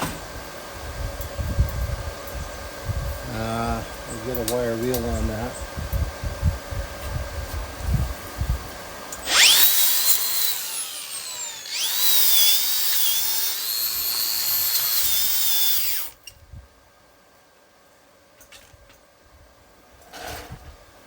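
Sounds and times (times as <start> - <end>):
grinder wire wheel whine: 9.2 - 16.2.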